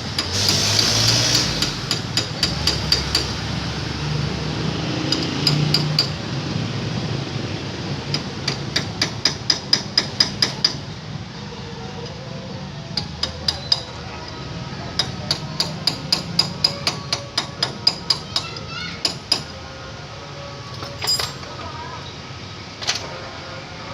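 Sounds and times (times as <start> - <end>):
hammer striking metal: 0.1 - 3.4, 5.1 - 6.2, 8.1 - 10.8, 13.0 - 14.0, 15.0 - 19.6, 20.8 - 21.5.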